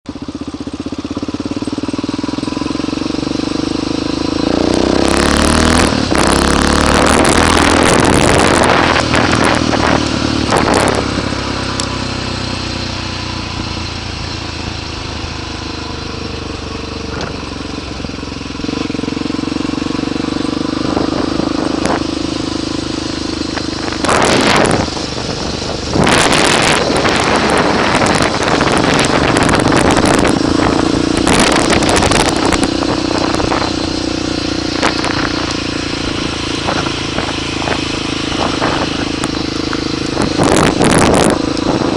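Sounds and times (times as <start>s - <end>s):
motorcycle engine revving: 0.1s - 41.9s
wind noise rushes: 4.4s - 11.9s, 17.0s - 41.9s.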